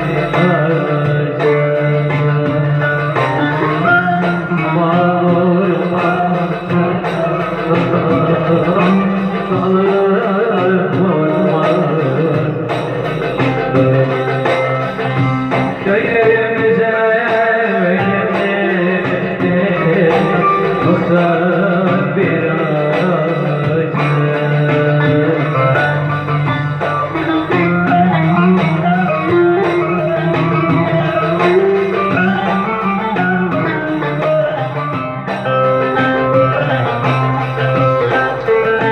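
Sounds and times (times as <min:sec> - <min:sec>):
backing accompaniment: 0:00.0 - 0:38.9
electric saz folk melody: 0:00.0 - 0:38.9.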